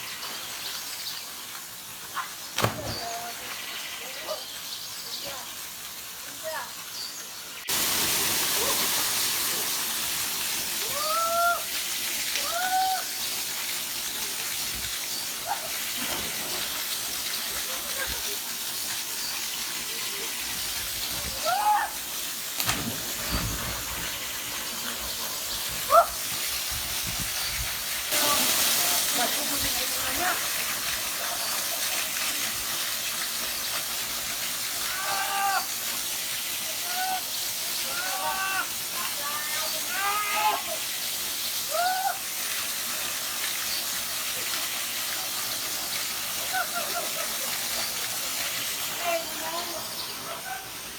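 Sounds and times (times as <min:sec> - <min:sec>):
waterfall rushing: 0:07.7 - 0:32.7, 0:34.0 - 0:50.9
person shouting: 0:10.8 - 0:11.7, 0:21.3 - 0:22.0, 0:34.9 - 0:35.7, 0:37.9 - 0:40.8.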